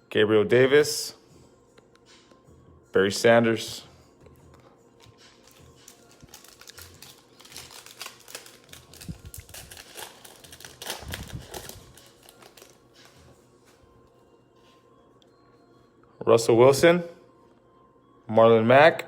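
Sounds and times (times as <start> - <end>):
cards and wrappers crinkling: 5.0 - 13.2.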